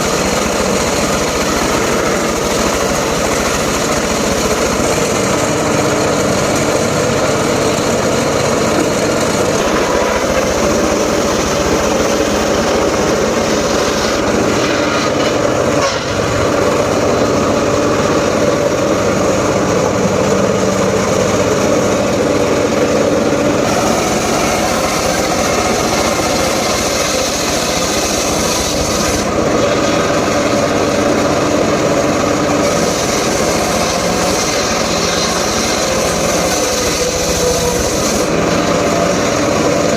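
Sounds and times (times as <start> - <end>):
engine-driven saw cutting wood: 0.0 - 39.9.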